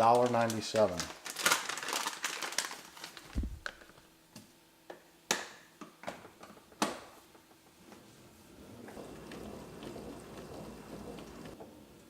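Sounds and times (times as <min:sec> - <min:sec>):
plastic packaging crinkling: 0:00.0 - 0:04.0.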